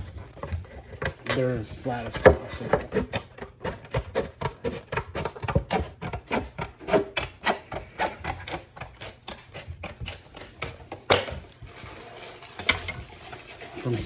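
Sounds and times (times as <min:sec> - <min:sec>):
plastic being sanded by hand: 0:00.0 - 0:10.8.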